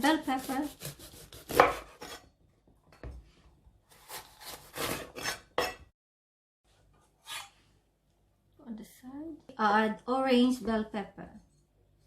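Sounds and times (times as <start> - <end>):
knife slicing pepper: 0.0 - 2.3, 3.9 - 5.8.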